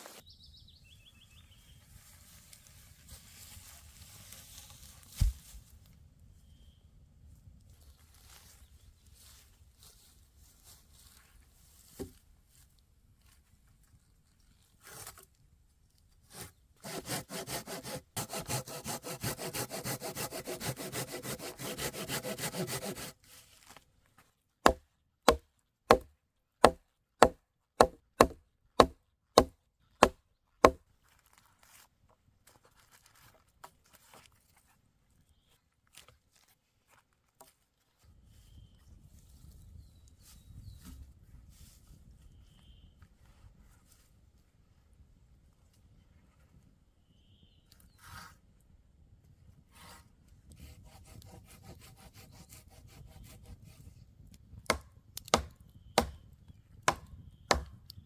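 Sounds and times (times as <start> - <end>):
hand saw cutting wood: 16.3 - 23.4, 24.6 - 30.8, 49.8 - 53.5, 54.7 - 56.2, 56.9 - 57.8
sharp knocks on wood: 24.7 - 30.2, 54.7 - 56.2, 56.9 - 57.8.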